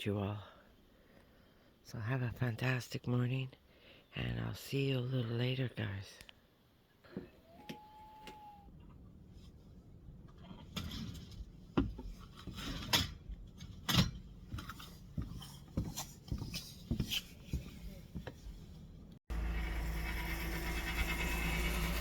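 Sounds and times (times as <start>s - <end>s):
brief steady tone: 7.4s - 8.7s
objects being handled and set down: 10.6s - 18.7s.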